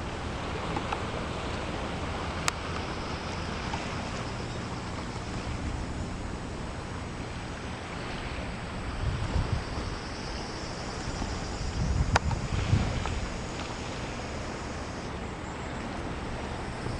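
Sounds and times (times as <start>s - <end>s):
rough sea and surf: 0.0s - 16.9s
strong wind on microphone: 8.5s - 14.3s.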